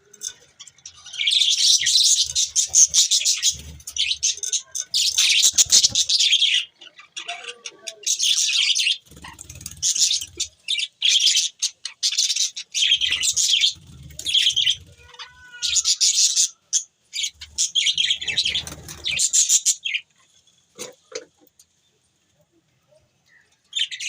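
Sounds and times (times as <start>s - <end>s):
budgerigars chirping and chattering: 0.1s - 21.4s, 23.3s - 24.0s.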